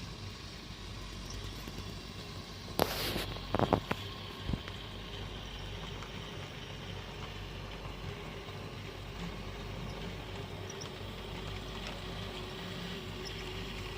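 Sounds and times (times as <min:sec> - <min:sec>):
model train humming: 0:00.0 - 0:13.9
brief hiss: 0:02.8 - 0:04.6.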